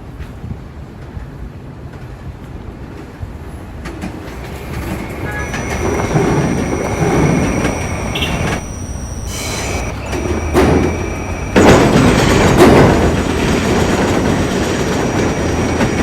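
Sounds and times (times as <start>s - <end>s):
subway train rumbling on rails: 0.0s - 16.0s
high steady squealing: 4.2s - 16.0s.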